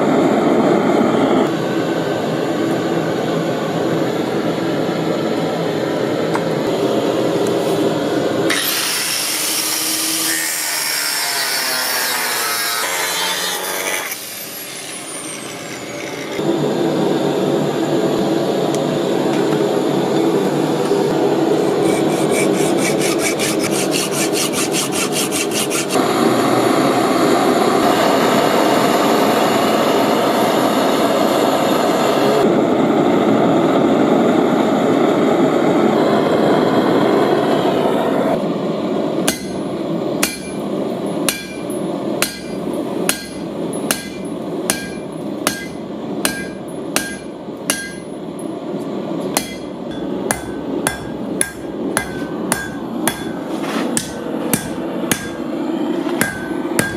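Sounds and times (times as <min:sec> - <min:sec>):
steady rushing noise: 0:16.4 - 0:56.9
hammer striking steel on anvil: 0:39.2 - 0:48.5, 0:49.3 - 0:56.9.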